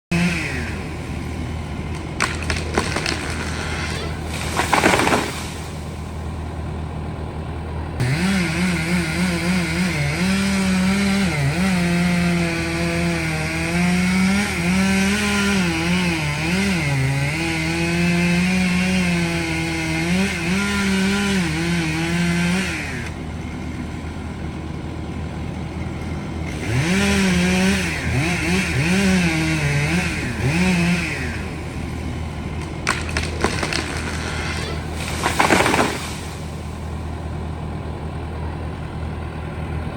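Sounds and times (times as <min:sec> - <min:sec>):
chainsaw cutting wood: 0:00.1 - 0:38.3
sharp cracks: 0:01.8 - 0:06.3, 0:30.1 - 0:37.1.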